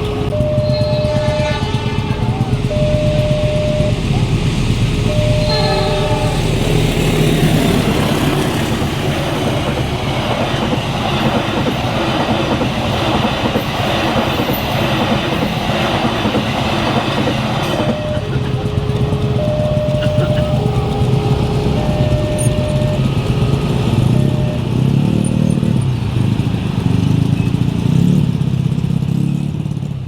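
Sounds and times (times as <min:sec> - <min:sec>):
train horn blast: 0:00.0 - 0:10.2, 0:14.2 - 0:24.9
crossing warning alarm tone: 0:00.0 - 0:26.4
train wheels clattering on rails: 0:00.0 - 0:30.0.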